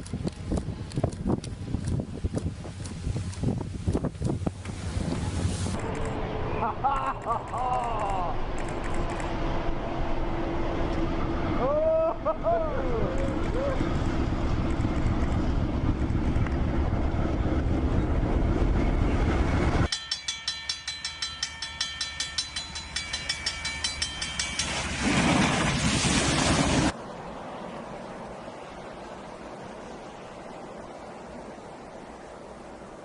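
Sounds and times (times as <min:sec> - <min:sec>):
steady high tones: 0:19.9 - 0:25.0
wheels clicking on rail: 0:19.9 - 0:25.4.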